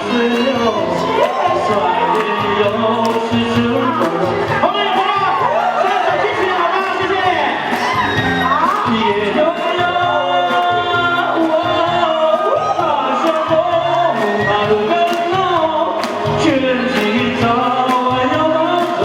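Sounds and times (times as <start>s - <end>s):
man singing a slow ballad: 0.0s - 4.4s, 8.9s - 19.0s
instrumental accompaniment with beat: 0.0s - 19.0s.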